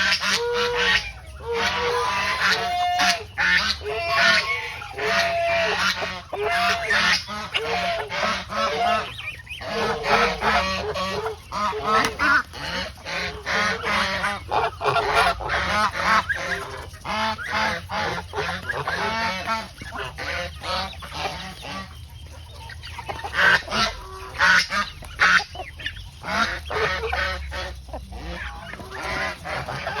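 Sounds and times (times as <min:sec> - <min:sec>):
geese honking: 0:00.0 - 0:30.0.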